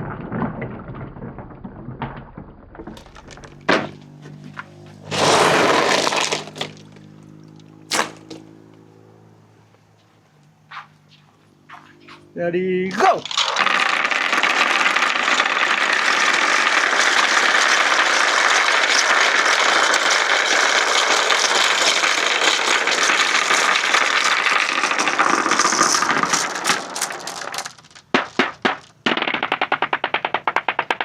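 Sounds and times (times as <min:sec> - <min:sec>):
marbles rattling down a ramp: 0:00.0 - 0:04.1, 0:05.0 - 0:07.0, 0:12.9 - 0:31.0.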